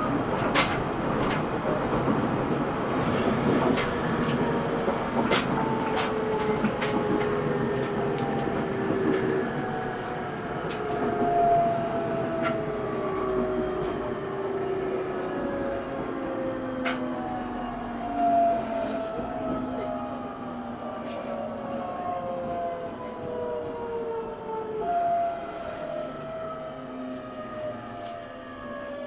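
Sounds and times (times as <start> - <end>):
train running rumble: 0.0 - 26.6.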